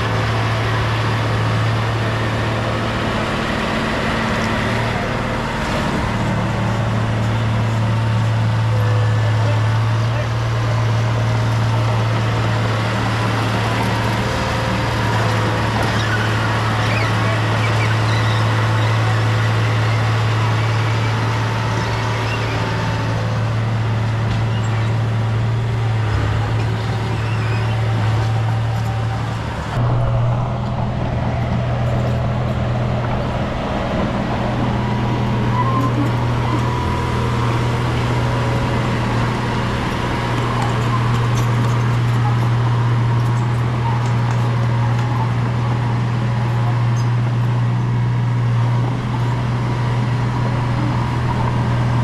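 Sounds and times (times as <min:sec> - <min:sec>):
bulldozer diesel engine running: 0:00.0 - 0:52.0.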